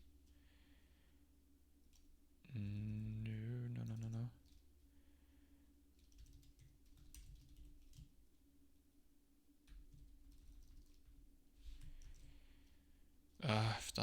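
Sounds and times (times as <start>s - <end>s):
faint steady hum: 0.0s - 14.0s
computer keyboard keystrokes: 6.0s - 8.1s, 9.7s - 11.1s, 11.8s - 12.3s.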